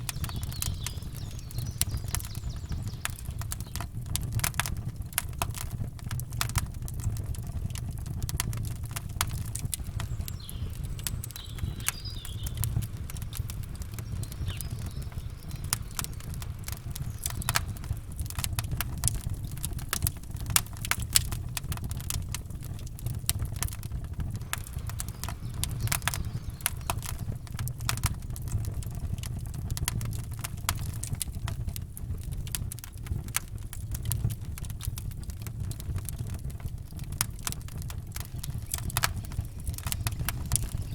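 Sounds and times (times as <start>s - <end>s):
faint bird chirps: 0.0s - 3.8s, 9.8s - 18.1s, 24.4s - 27.6s, 38.3s - 40.9s
campfire crackling and popping: 0.0s - 40.9s.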